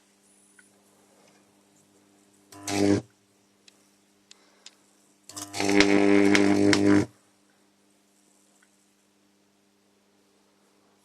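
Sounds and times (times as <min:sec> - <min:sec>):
faint transformer hum: 0:00.0 - 0:11.0
electric arc buzzing and crackling: 0:02.4 - 0:03.2, 0:05.2 - 0:07.2.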